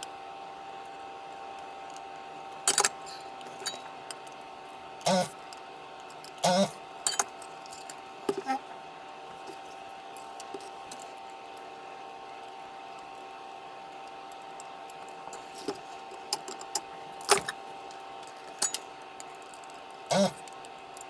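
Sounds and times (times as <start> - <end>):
metal parts clinking: 2.7 - 4.3, 7.1 - 8.5, 15.3 - 17.6, 18.2 - 19.8.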